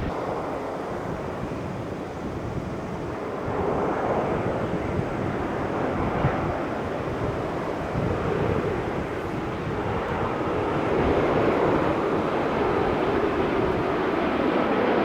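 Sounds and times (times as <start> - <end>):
jet engines rushing: 0.0 - 1.6.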